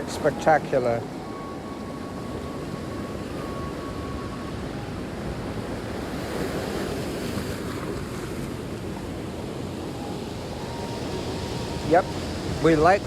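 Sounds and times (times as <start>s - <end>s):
waves breaking on rocky shore: 0.0s - 13.0s
wind buffeting microphone: 0.0s - 13.0s.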